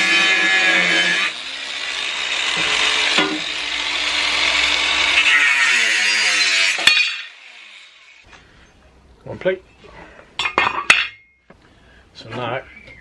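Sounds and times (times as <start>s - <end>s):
angle grinder cutting metal: 0.0s - 8.3s.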